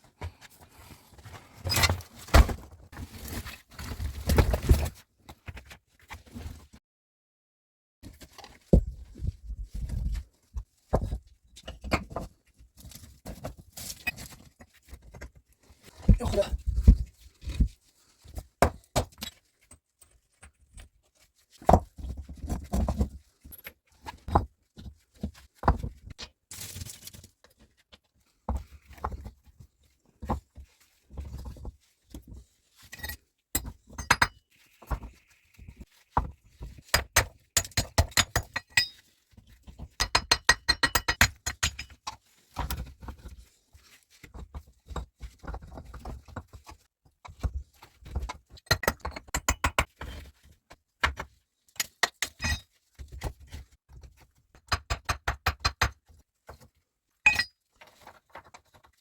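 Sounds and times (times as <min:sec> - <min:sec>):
hard objects clinking and knocking: 0:57.3 - 0:57.5.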